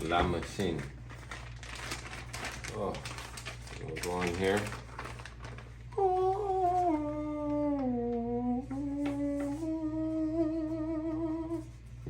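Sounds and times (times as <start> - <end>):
person humming a long note: 5.9 - 11.8.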